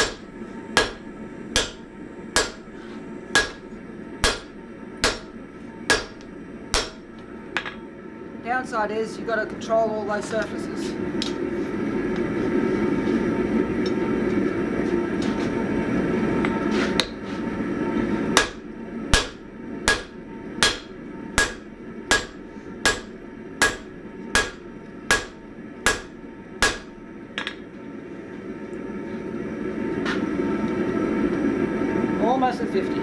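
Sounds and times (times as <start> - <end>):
hammer ringing on anvil: 0.0 - 2.8, 3.4 - 6.2, 6.8 - 7.1, 18.4 - 18.6, 19.2 - 27.0.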